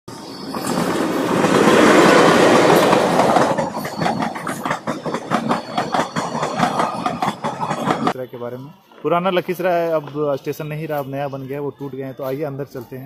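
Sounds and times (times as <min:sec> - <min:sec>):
train passing rush: 0:00.1 - 0:12.6
wheels clacking over rail joints: 0:00.4 - 0:08.2.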